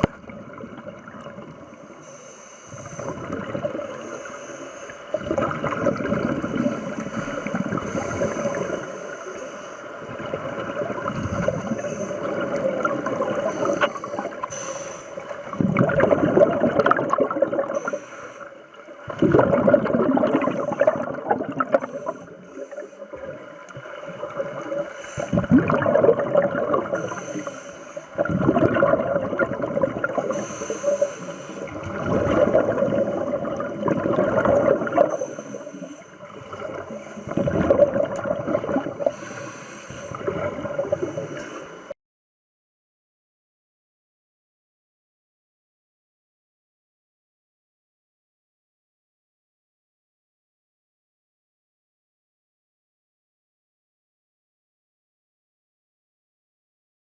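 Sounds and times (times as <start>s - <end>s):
underwater bubbles gurgling: 0.0s - 41.9s.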